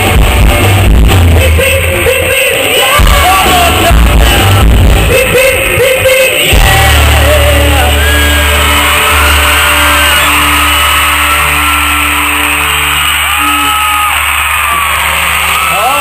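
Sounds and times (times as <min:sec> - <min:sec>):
lead singer singing: 0:00.0 - 0:10.6
bass guitar: 0:00.0 - 0:16.0
live rock band playing: 0:00.0 - 0:16.0.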